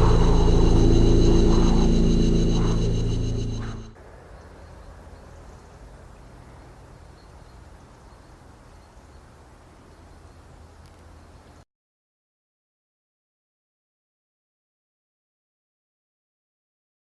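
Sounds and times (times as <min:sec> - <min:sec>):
low rumble: 0:00.0 - 0:05.1.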